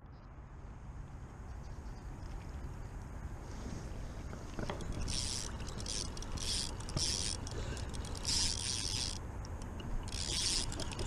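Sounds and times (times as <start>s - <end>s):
fishing reel whirring: 4.9s - 11.0s.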